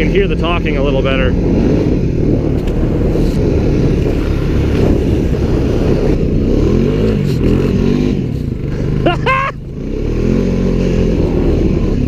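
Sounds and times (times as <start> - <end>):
wind noise on microphone: 0.0 - 8.6
atv engine running: 0.0 - 12.0.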